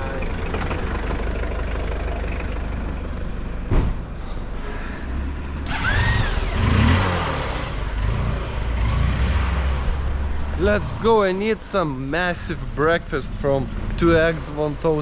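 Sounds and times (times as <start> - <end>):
car engine rumbling: 0.0 - 15.0
sharp thump: 3.7 - 4.0.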